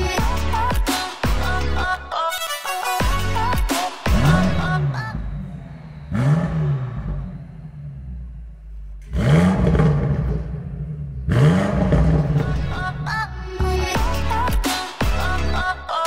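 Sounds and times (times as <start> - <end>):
car engine revving: 3.0 - 15.8.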